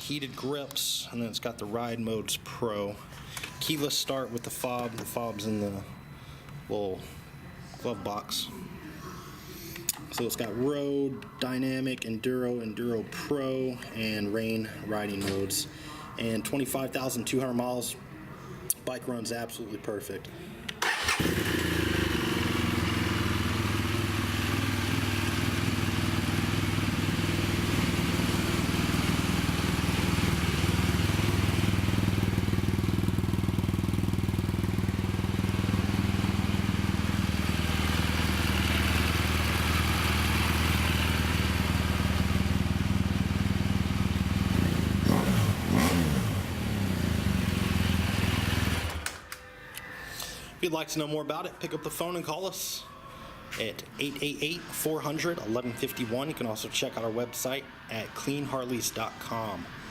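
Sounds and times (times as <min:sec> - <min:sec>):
motorcycle engine revving: 0:20.8 - 0:49.0
motorcycle engine idling: 0:20.9 - 0:49.0.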